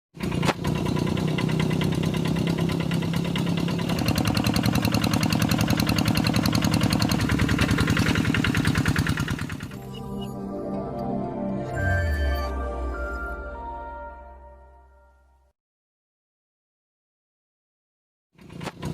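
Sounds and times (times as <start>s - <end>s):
diesel engine running: 0.2s - 14.4s, 18.4s - 18.9s.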